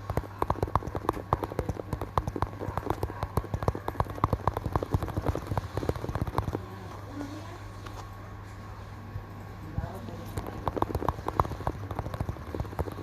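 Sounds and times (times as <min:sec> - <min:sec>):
fingers tapping on hard surface: 0:00.0 - 0:06.8, 0:10.3 - 0:13.0
steady low hum: 0:00.0 - 0:13.0.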